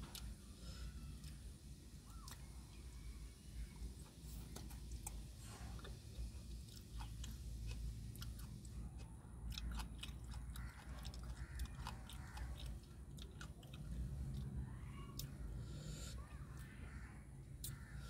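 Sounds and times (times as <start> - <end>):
person chewing food: 0.0 - 2.5, 4.3 - 15.5
low steady hum: 0.0 - 18.0.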